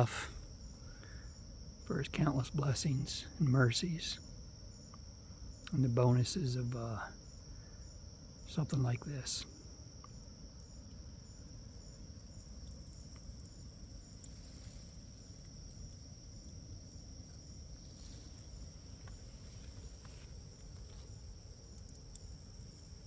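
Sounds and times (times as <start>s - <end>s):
crickets trilling: 0.0s - 23.0s
low background rumble: 8.4s - 23.0s
faint clicks: 12.4s - 23.0s.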